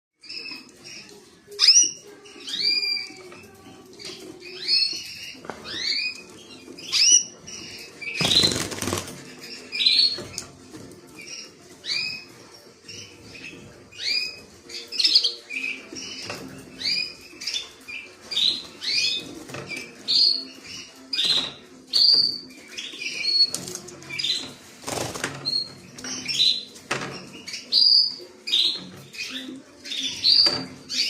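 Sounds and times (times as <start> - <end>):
canary chirping: 0.2 - 31.0
wing flapping: 8.2 - 9.3.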